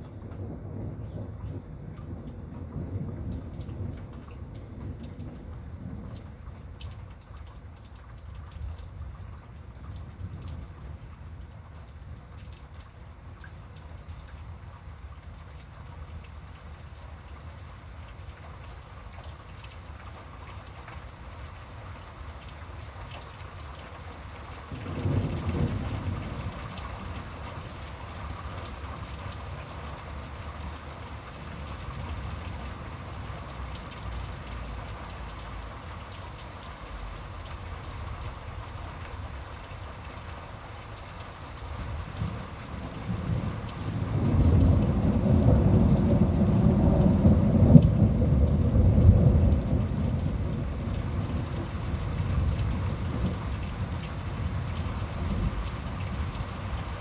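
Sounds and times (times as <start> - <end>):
thunder rumble: 0.0 - 6.8, 24.6 - 40.2, 40.9 - 57.0
steady rain: 0.0 - 57.0.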